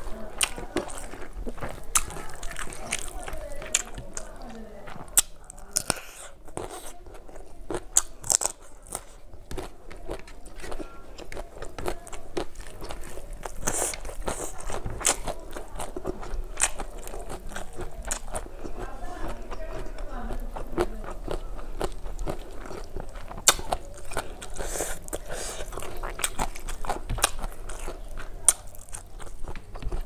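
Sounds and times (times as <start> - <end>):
close chewing: 0.0 - 30.0
wet mouth clicks and smacks: 23.4 - 23.8.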